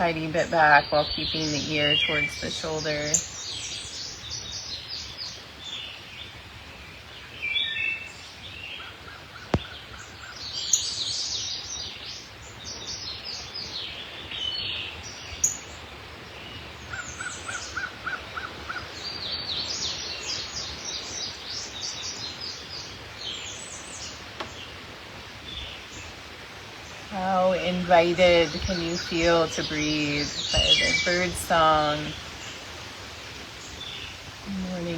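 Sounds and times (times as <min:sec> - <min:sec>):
birds singing and chirping: 0:00.0 - 0:06.4, 0:07.0 - 0:34.9
evenly spaced lower bird notes: 0:27.0 - 0:32.6.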